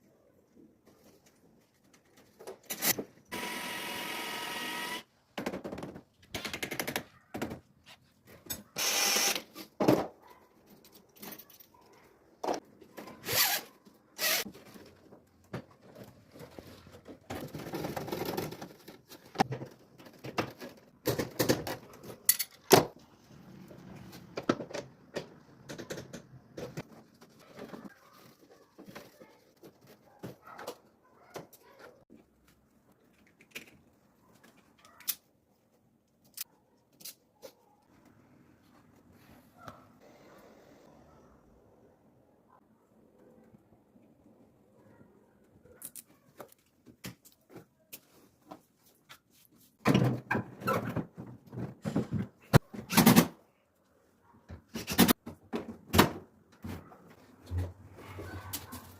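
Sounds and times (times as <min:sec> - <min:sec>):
cordless drill running: 0:03.3 - 0:05.0, 0:08.8 - 0:09.4, 0:14.2 - 0:14.4
knocks clatter and scrapes: 0:09.6 - 0:32.1.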